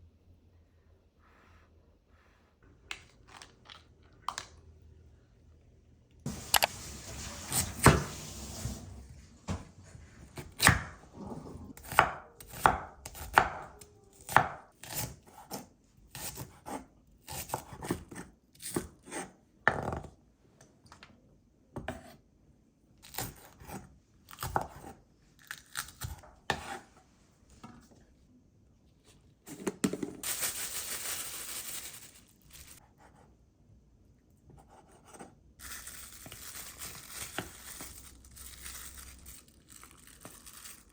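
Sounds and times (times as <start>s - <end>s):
knife chopping on cutting board: 11.8s - 15.6s.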